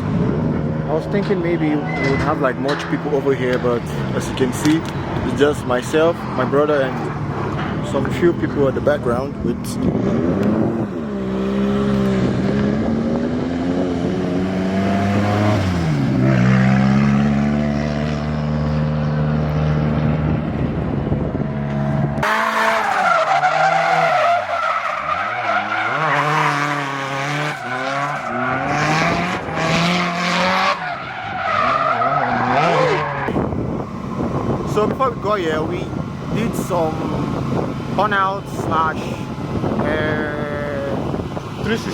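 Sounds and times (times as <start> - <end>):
car engine at high revs: 0.0 - 41.9
tyre squeal: 1.6 - 2.5, 22.2 - 33.3.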